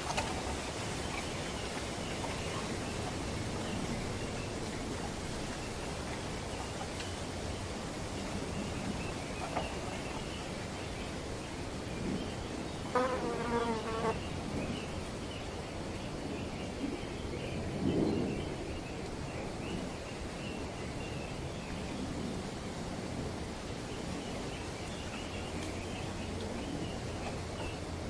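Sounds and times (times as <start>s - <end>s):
wind rustling through foliage: 0.0s - 28.0s.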